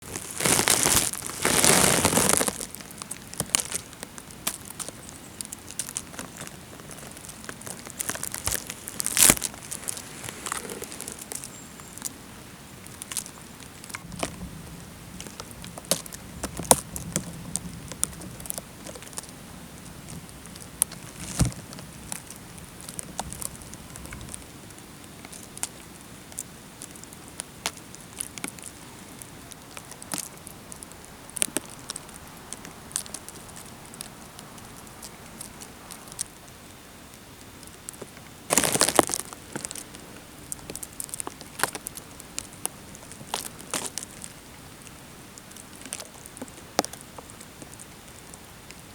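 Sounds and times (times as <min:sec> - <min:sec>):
footsteps crunching through dry leaves: 0:00.0 - 0:12.1, 0:38.5 - 0:44.3
twigs snapping: 0:00.0 - 0:12.2, 0:20.3 - 0:24.5, 0:25.1 - 0:36.3, 0:37.6 - 0:47.8.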